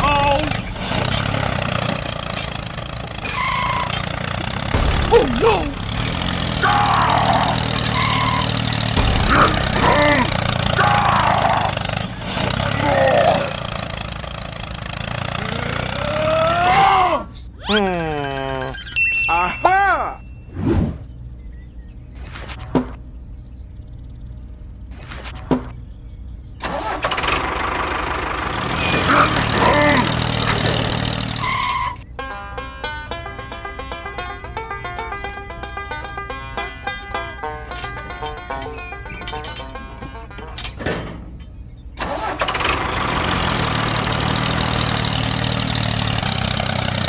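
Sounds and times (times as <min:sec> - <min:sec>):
engine starting and running: 0:00.0 - 0:17.0, 0:26.4 - 0:47.0.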